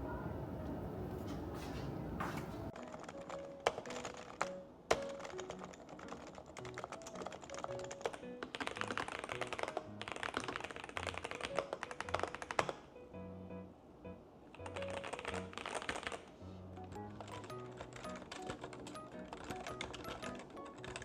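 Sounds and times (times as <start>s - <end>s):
background music: 2.6s - 21.0s
keyboard typing: 2.7s - 12.9s, 14.5s - 21.0s.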